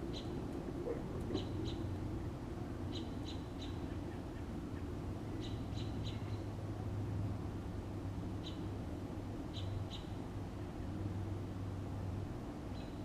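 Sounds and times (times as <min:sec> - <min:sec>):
steady low hum: 0:00.0 - 0:13.0
small bird chirping: 0:02.9 - 0:04.5.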